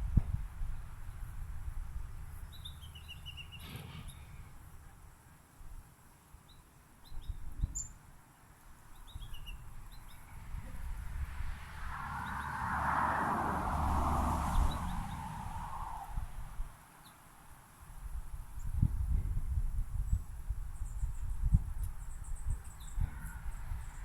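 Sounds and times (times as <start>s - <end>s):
small birds chirping: 6.4s - 10.4s.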